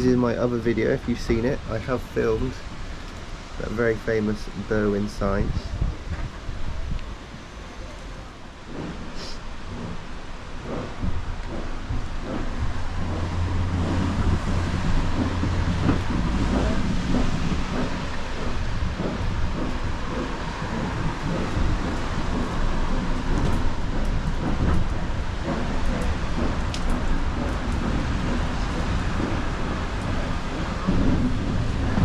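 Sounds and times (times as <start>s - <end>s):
train rumbling on track: 0.0s - 32.0s
sharp clicks and knocks: 8.7s - 32.0s.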